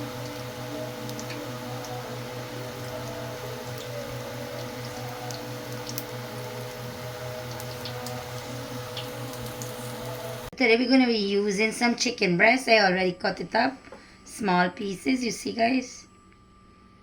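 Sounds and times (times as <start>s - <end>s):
pot simmering with pops: 0.0s - 10.5s
steady hum: 0.0s - 10.6s.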